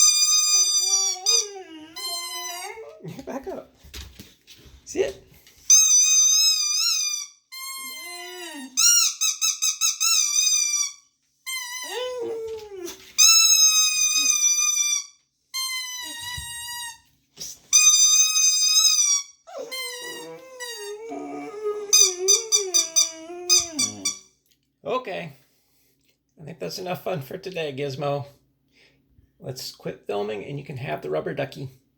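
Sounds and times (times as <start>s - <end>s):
rubber duck toy squeaking: 0.0s - 2.9s, 5.7s - 12.0s, 13.2s - 17.0s, 17.7s - 21.0s, 21.9s - 24.2s
dog howling: 0.0s - 3.0s, 7.8s - 9.0s, 11.7s - 13.0s, 19.5s - 24.2s.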